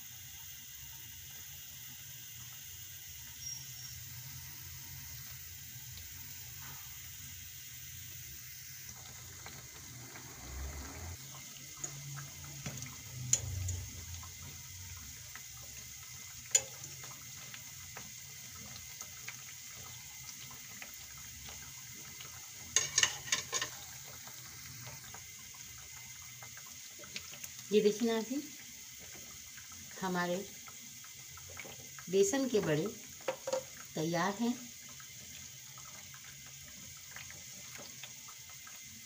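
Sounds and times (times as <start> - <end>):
fritters sizzling in oil: 0.0 - 39.0
fork tapping on pan: 22.8 - 23.7, 33.3 - 33.7.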